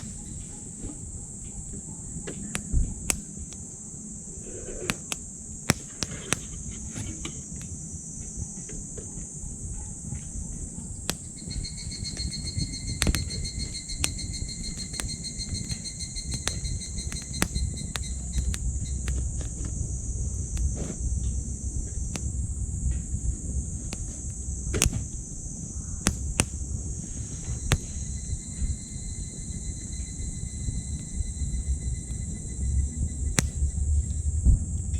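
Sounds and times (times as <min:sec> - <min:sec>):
wood fire crackling: 0:00.0 - 0:08.2, 0:10.6 - 0:28.8
thin insect-like tone: 0:00.0 - 0:34.5
insects chirring: 0:00.0 - 0:34.9
low rumble: 0:16.1 - 0:34.9.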